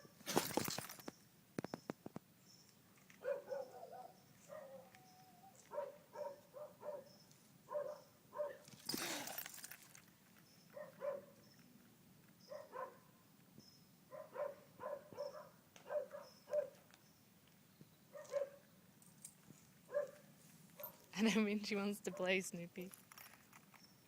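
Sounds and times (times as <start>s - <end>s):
small dog yipping: 3.2s - 7.1s, 10.7s - 11.4s, 14.1s - 16.8s, 18.2s - 18.6s.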